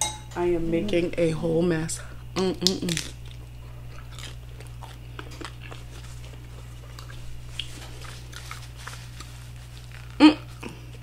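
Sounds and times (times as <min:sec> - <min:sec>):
low electrical hum: 0:00.0 - 0:11.0
chewing and wet mouth clicks: 0:02.6 - 0:10.2.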